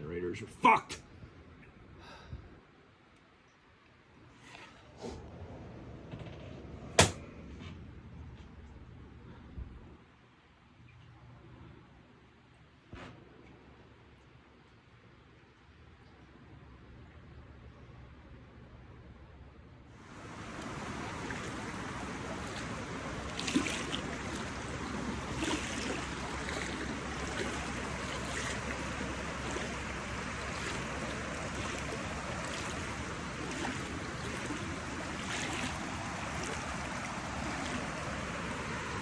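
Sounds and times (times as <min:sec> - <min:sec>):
floodwater rushing: 0:20.0 - 0:39.0.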